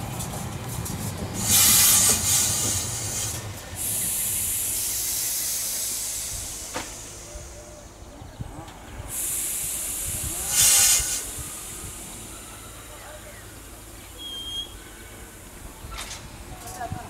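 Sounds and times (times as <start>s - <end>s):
train wheels rumbling on rails: 0.0s - 17.0s
compressed air hiss: 1.4s - 7.8s, 9.1s - 12.3s.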